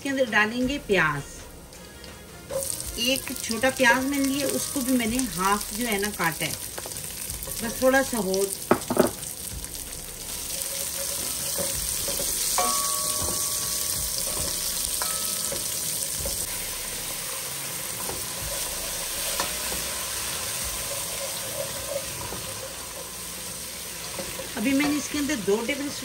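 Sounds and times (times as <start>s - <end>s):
onion and garlic sizzling in oil: 0.0s - 26.0s
spoon clinking against pan: 11.0s - 16.4s.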